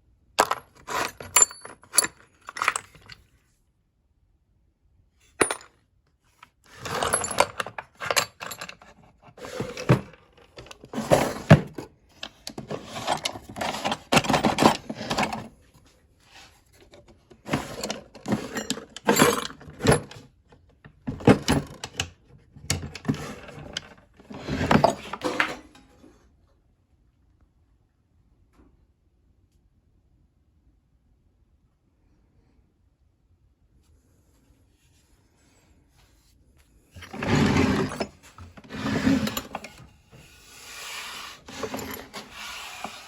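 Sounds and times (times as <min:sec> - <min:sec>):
metal tools clinking and rattling: 0:00.4 - 0:03.2, 0:05.4 - 0:05.7, 0:06.8 - 0:15.5, 0:17.5 - 0:20.2, 0:22.7 - 0:25.8, 0:37.0 - 0:39.8, 0:41.5 - 0:43.0.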